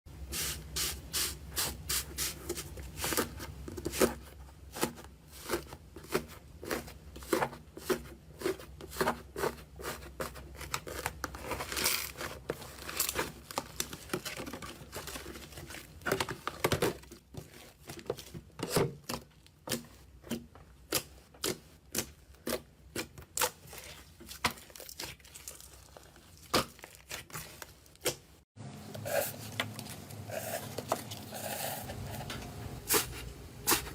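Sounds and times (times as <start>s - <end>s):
crunchy slime crackling: 20.9s - 28.4s.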